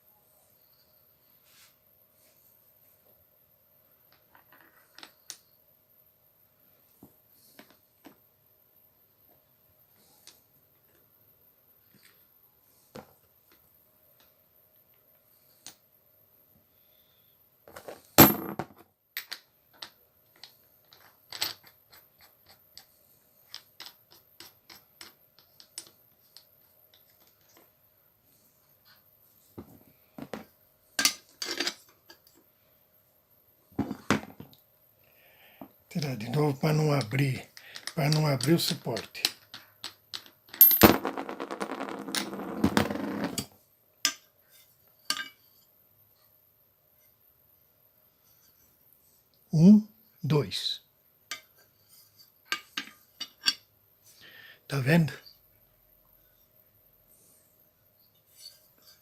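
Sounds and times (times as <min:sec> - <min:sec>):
tools clicking and tapping: 0:19.2 - 0:27.6, 0:45.1 - 0:45.5, 0:51.3 - 0:51.6.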